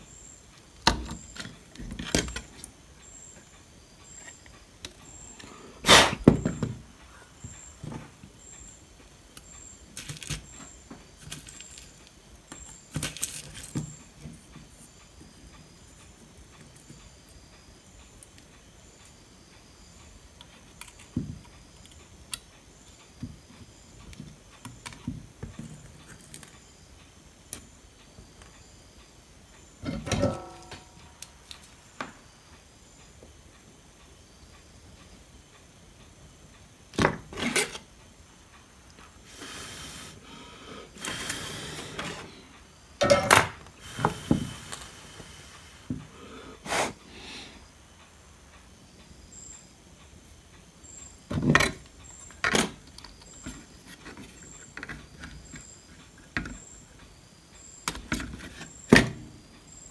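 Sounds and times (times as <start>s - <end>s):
tools clicking and knocking on workbench: 43.0s - 44.4s.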